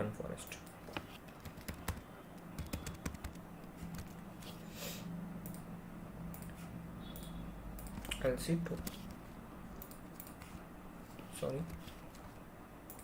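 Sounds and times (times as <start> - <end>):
steady low hum: 0.0 - 13.0
computer keyboard typing: 0.4 - 4.2, 6.3 - 10.6, 11.2 - 12.3
key or mouse clicks: 6.3 - 9.1, 9.7 - 10.6.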